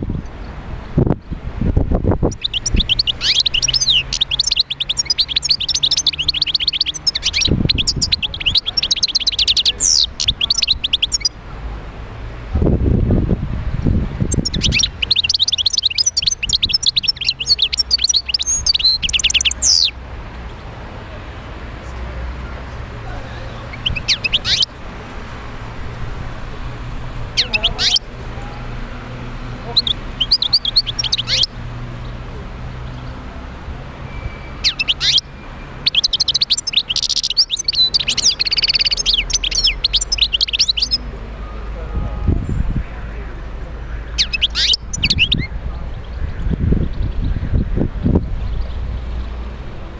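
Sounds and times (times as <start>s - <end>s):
goldfinch twittering song: 2.2s - 11.4s, 14.3s - 20.0s, 23.5s - 24.7s, 27.3s - 28.0s, 29.7s - 31.6s, 34.0s - 41.1s, 44.0s - 47.8s.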